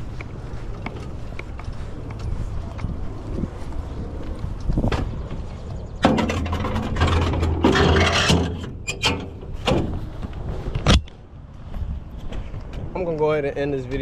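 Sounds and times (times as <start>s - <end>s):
truck engine rumbling: 0.0s - 11.4s
clunks and rattles: 4.8s - 11.2s.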